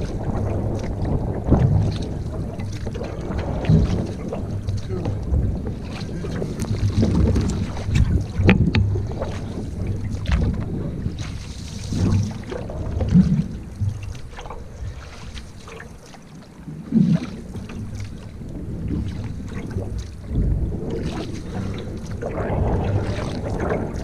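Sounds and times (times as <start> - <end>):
wind buffeting microphone: 0.0 - 15.9, 16.6 - 24.0
water splashes: 0.0 - 24.0.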